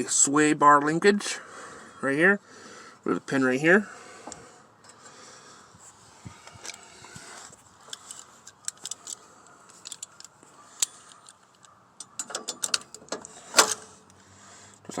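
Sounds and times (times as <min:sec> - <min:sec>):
metallic clicks and clinks: 0:07.9 - 0:13.8.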